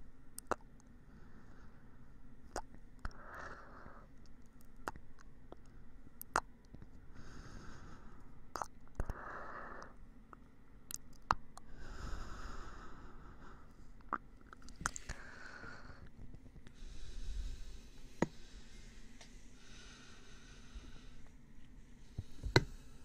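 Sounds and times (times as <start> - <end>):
soft breathy puffs: 11.6 - 14.0, 14.6 - 23.0.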